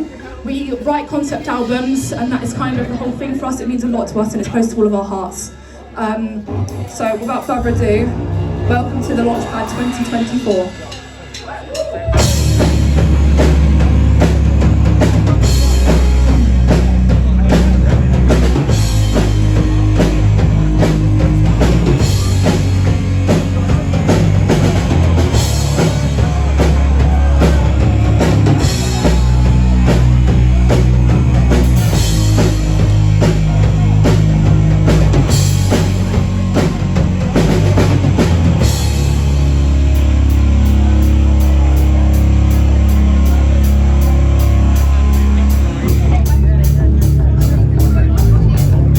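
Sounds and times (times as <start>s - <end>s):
drums hitting steadily: 0.0s - 5.1s, 6.4s - 48.9s
rock band playing live: 6.5s - 48.9s.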